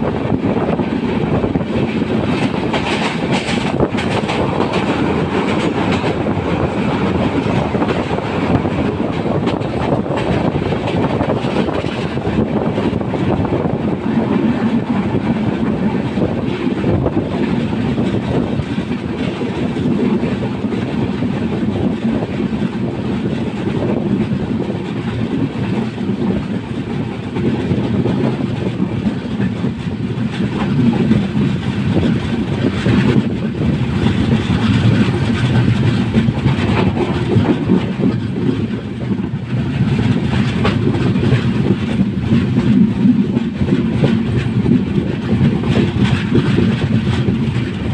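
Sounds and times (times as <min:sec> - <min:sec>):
train rumbling on rails: 0:00.0 - 0:47.9
wheels clacking over rail joints: 0:00.0 - 0:47.9.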